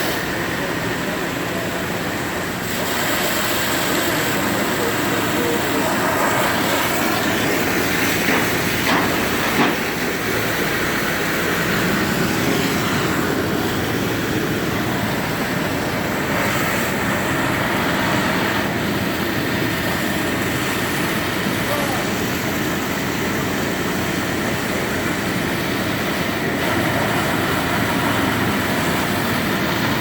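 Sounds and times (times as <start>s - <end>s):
demolition machinery rumbling: 0.0s - 30.0s
sharp knocks: 8.2s - 10.0s.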